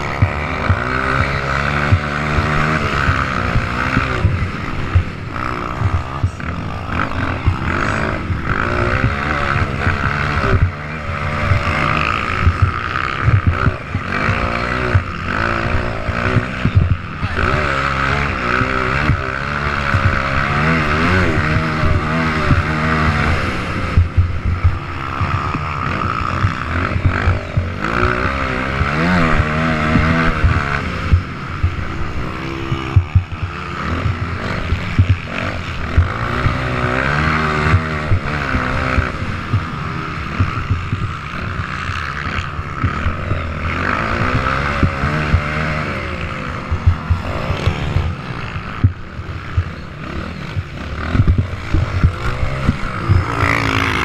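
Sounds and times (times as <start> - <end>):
motocross bike engines revving: 0.0 - 54.0.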